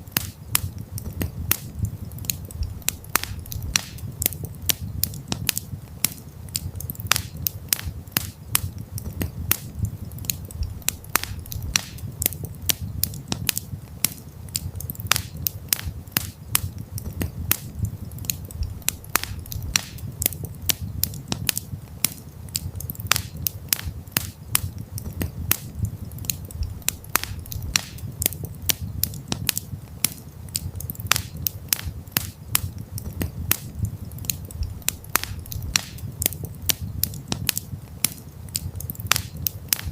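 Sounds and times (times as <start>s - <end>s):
campfire crackling and popping: 0.0s - 39.9s
low steady rumble: 8.0s - 13.9s, 16.5s - 21.9s, 24.0s - 29.9s, 31.9s - 37.9s.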